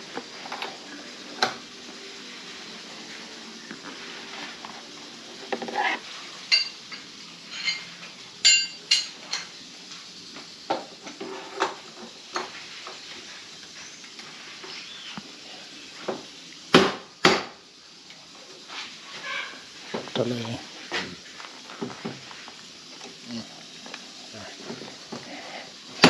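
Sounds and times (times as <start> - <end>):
metal tools clinking: 6.5 - 9.5.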